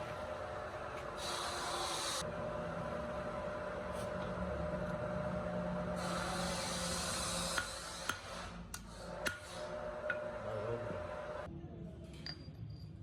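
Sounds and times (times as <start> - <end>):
workshop machinery humming: 0.0 - 11.5.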